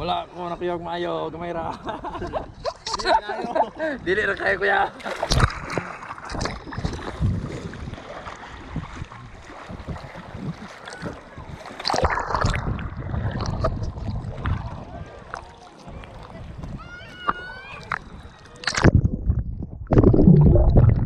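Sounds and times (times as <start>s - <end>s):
water rushing and splashing: 4.4s - 19.0s
wind buffeting microphone: 5.4s - 21.0s.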